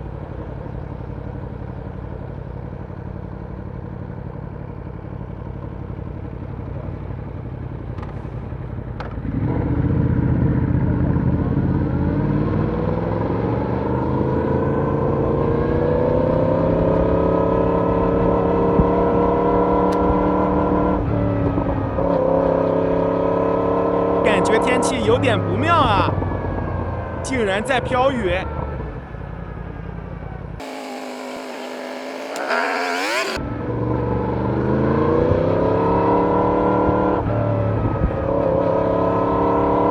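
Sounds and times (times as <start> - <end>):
faint clicks: 30.6 - 33.4
motorcycle engine revving: 30.6 - 33.4.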